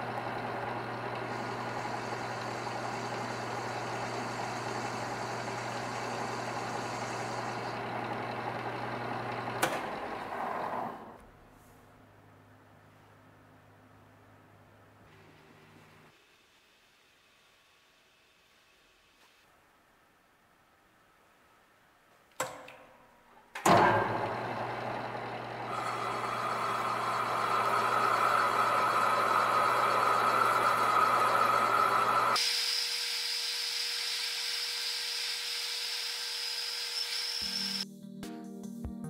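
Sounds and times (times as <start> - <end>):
metal lathe spindle running: 0.0 - 11.1, 23.7 - 32.4
tool cutting metal: 25.7 - 37.8
music: 37.8 - 39.0.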